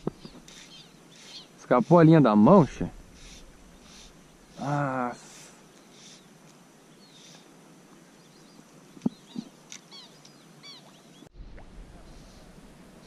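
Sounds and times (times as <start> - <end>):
faint bird chirps: 8.1 - 11.3.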